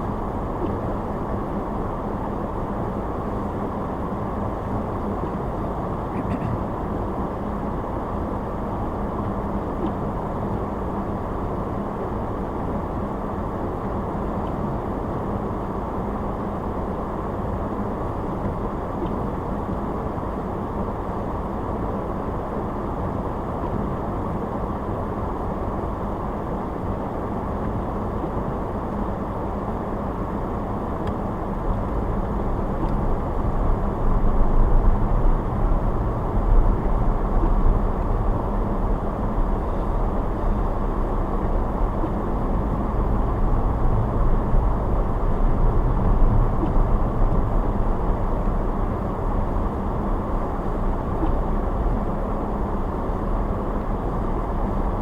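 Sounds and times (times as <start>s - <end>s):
car road and engine noise: 0.0s - 55.0s
deep rumble: 31.0s - 55.0s.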